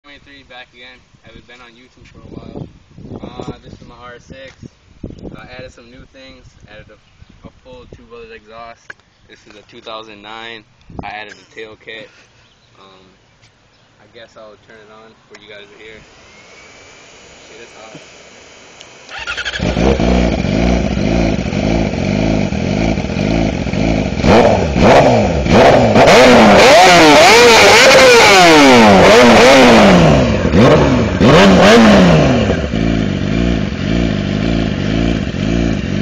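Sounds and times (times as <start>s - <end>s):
motorcycle engine starting and revving: 15.9s - 36.0s.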